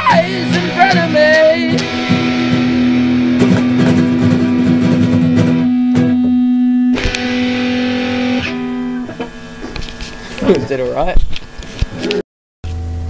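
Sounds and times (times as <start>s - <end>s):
instrumental guitar rock music: 0.0s - 9.3s.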